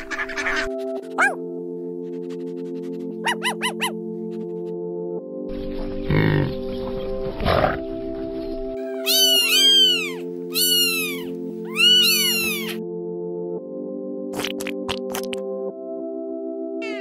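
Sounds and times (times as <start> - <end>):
background music: 0.0 - 17.0
kitten meowing: 9.0 - 12.8.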